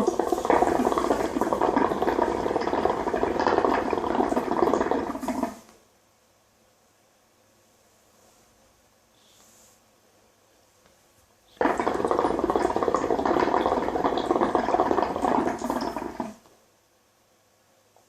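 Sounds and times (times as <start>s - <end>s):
hookah water bubbling: 0.0s - 5.7s, 11.6s - 16.5s.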